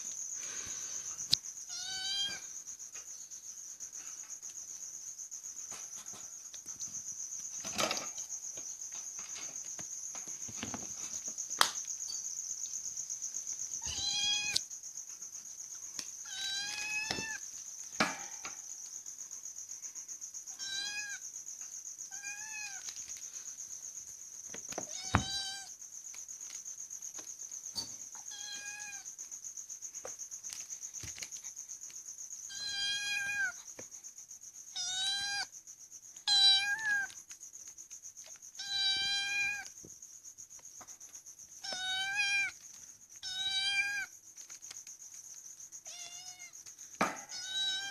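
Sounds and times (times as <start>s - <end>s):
cat meowing: 1.7s - 2.4s, 13.8s - 14.6s, 16.2s - 17.4s, 22.1s - 22.8s, 24.9s - 25.7s, 28.3s - 29.0s, 32.5s - 33.6s, 36.3s - 37.1s, 41.6s - 42.5s, 43.2s - 44.1s, 45.8s - 46.6s, 47.3s - 47.9s.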